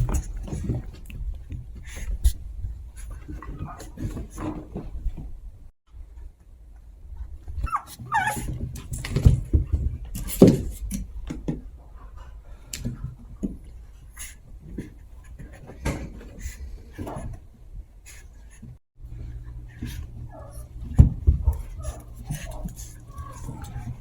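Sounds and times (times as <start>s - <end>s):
scuffling and small knocks: 7.5s - 11.8s, 18.4s - 24.0s
puppies yipping: 7.6s - 8.5s.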